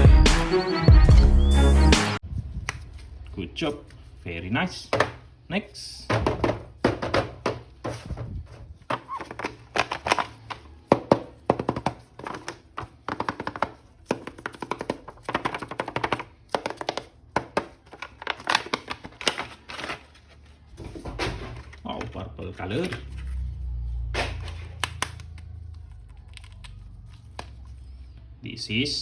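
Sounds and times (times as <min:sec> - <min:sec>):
plastic pieces tapping and clicking: 0:08.9 - 0:19.9.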